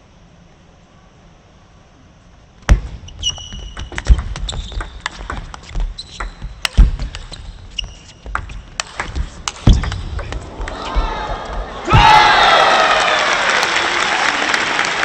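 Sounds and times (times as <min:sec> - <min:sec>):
shoes squeaking on floor: 0:03.0 - 0:09.9
ping pong ball clicking: 0:03.5 - 0:07.4, 0:08.2 - 0:10.3.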